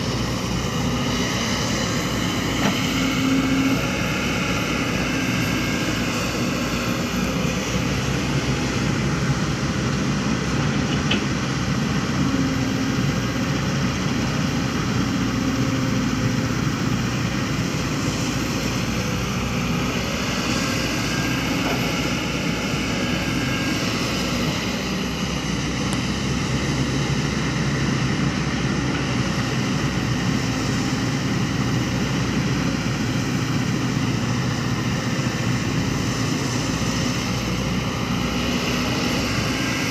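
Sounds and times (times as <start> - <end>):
diesel machinery engines droning: 0.0 - 39.9.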